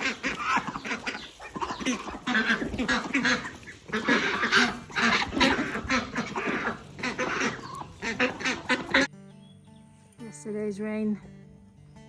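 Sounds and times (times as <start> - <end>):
ducks quacking: 0.0 - 9.1.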